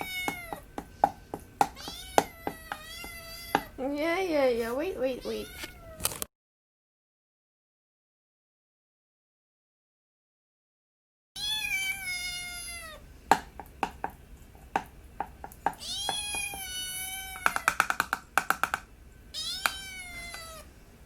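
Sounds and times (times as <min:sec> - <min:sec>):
cat meowing: 0:00.0 - 0:00.7, 0:01.7 - 0:03.8, 0:05.2 - 0:06.3, 0:11.4 - 0:13.0, 0:15.8 - 0:17.8, 0:19.3 - 0:20.7
quick taps: 0:17.4 - 0:18.9.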